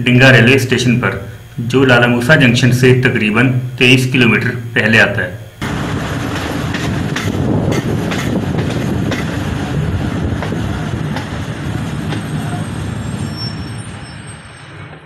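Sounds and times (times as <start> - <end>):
train rumbling on rails: 5.5 - 15.0
wheels clicking over rail joints: 5.7 - 9.4.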